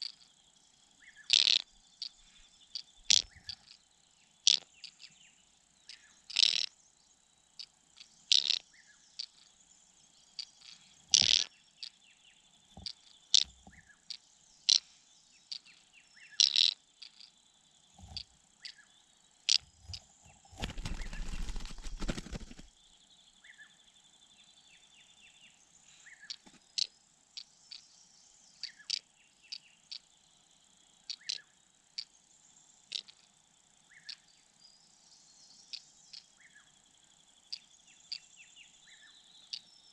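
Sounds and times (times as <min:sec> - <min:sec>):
crickets chirping: 0:00.0 - 0:39.9
small birds chirping: 0:00.0 - 0:39.9
rustling fluttering burst: 0:19.8 - 0:22.7.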